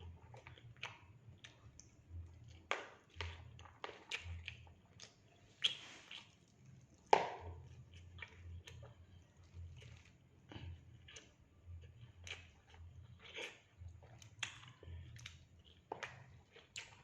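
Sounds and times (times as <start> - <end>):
person chewing food: 0.0 - 17.0
wet mouth smacks and clicks: 3.2 - 6.3.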